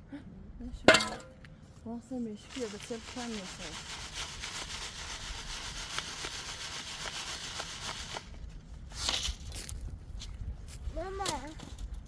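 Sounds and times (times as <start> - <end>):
rapid rubbing or scraping strokes: 2.5 - 8.4.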